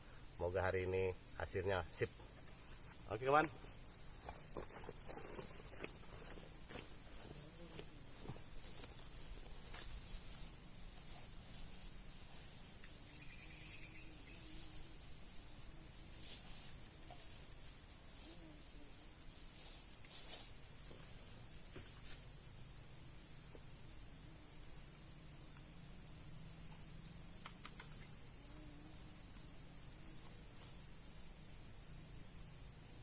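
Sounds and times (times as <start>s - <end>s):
crickets trilling: 0.0s - 33.0s
faint clicks: 27.4s - 28.1s.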